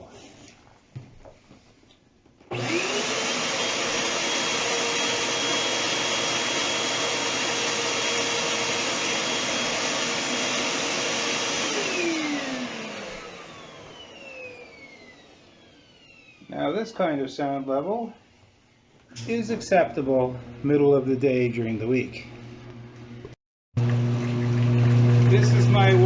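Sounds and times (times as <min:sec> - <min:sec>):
appliance motor whining: 0:02.5 - 0:16.6, 0:22.7 - 0:26.0.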